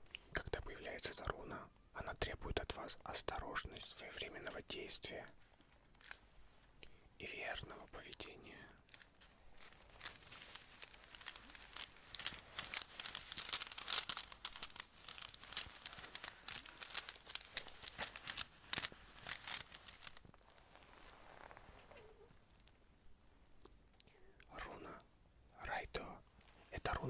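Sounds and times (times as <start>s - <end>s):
crinkling handling noise: 4.3s - 22.8s, 26.0s - 27.0s.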